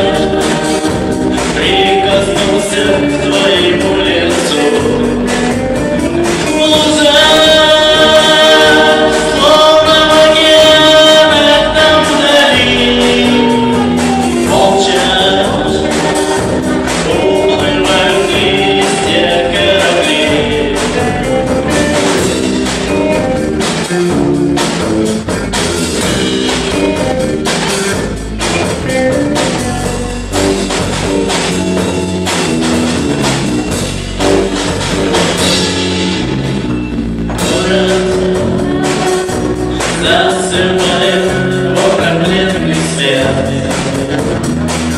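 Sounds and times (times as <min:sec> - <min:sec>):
person singing: 0:00.0 - 0:23.3, 0:37.3 - 0:44.9
bass guitar: 0:00.0 - 0:44.9
drum kit: 0:00.0 - 0:44.9
electric guitars: 0:00.0 - 0:44.9.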